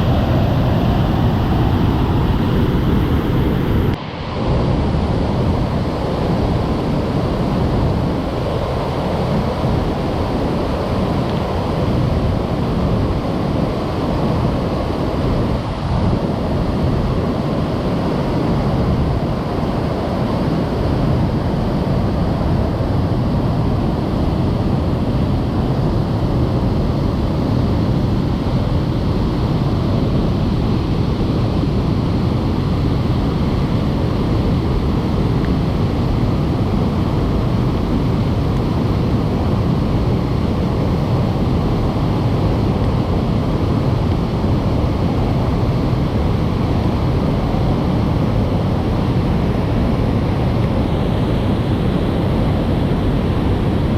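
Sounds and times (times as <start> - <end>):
waterfall rushing: 0.0 - 4.4.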